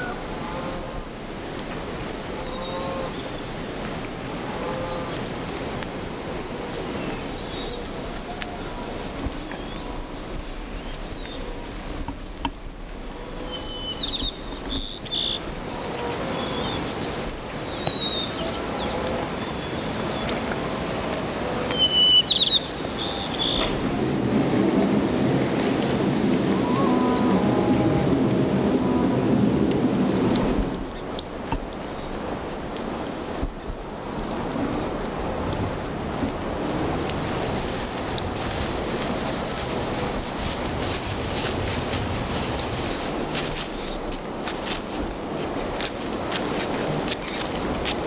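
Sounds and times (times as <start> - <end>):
small birds chirping: 13.0 - 15.4, 21.7 - 24.2.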